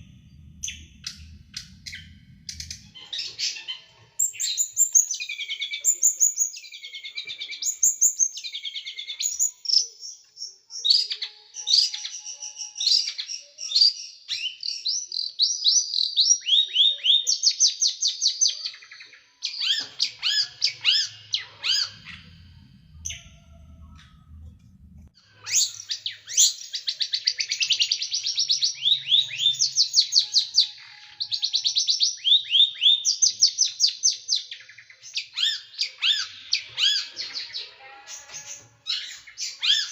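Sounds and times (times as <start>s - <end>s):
faint low hum: 0.0s - 4.6s, 20.0s - 26.2s
small songbird singing: 0.0s - 24.5s, 25.1s - 39.9s.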